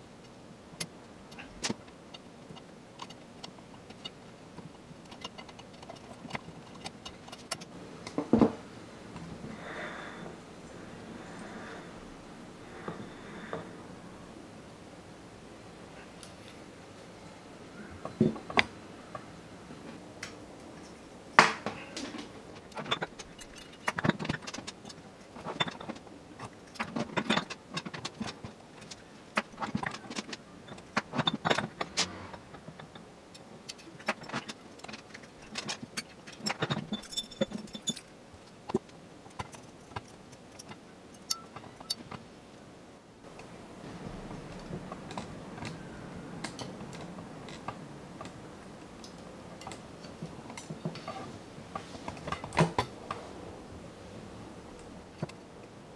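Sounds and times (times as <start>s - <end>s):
metal spokes clicking and jingling: 22.8s - 28.3s, 33.7s - 38.1s, 39.4s - 42.1s.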